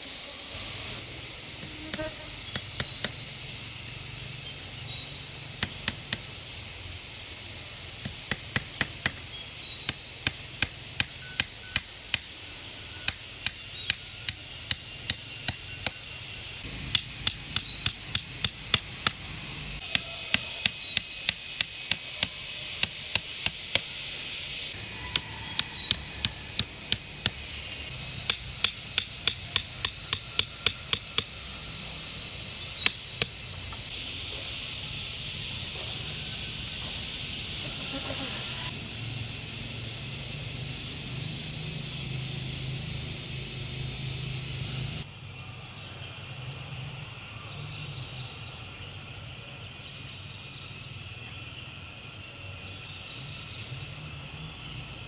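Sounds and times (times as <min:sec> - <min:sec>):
high insect drone: 0:00.0 - 0:55.0
hand tool strikes: 0:01.6 - 0:03.2, 0:05.6 - 0:06.3, 0:08.0 - 0:09.2, 0:09.8 - 0:19.2, 0:19.8 - 0:24.0, 0:25.1 - 0:27.5, 0:28.2 - 0:31.4.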